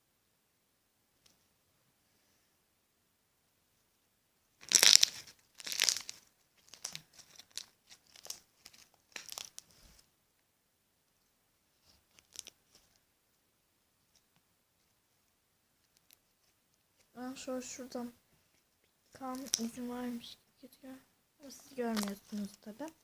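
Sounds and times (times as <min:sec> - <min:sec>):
slime crackling and popping: 0:04.6 - 0:09.7, 0:12.1 - 0:12.8, 0:19.1 - 0:19.9, 0:21.4 - 0:23.0.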